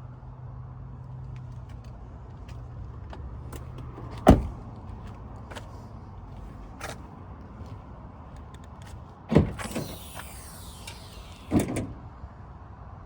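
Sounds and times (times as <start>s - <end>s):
truck door shutting: 3.6s - 4.6s, 9.3s - 12.1s.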